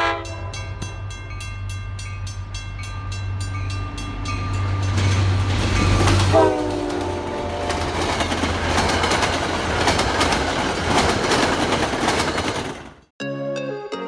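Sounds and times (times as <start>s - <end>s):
locomotive horn: 0.0s - 0.8s, 6.2s - 8.0s
train rumble: 0.0s - 13.1s
train wheels clattering: 3.7s - 13.1s
music: 13.2s - 14.0s.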